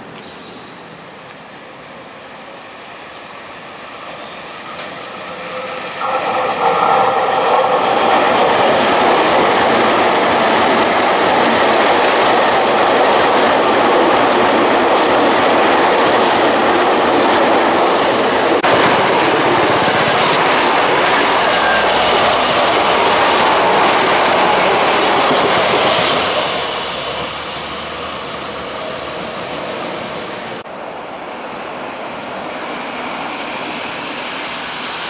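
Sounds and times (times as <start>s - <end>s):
train wheel and track noise: 0.0s - 35.0s
train motor whine: 4.1s - 11.4s.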